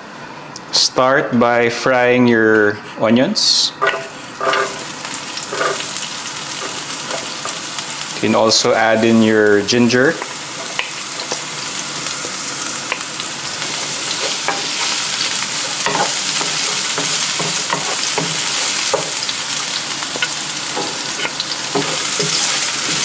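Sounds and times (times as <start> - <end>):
wooden spatula scraping pan: 3.8 - 4.9, 5.5 - 6.0, 20.2 - 23.0
onions sizzling in hot oil: 3.8 - 23.0.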